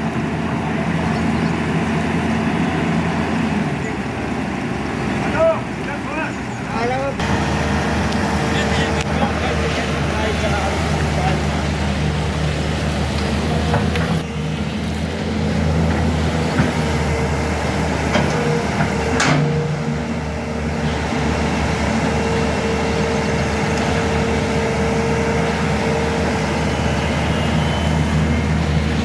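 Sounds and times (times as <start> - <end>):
excavator diesel engine running: 0.0 - 29.0
hydraulic whine: 6.6 - 29.0.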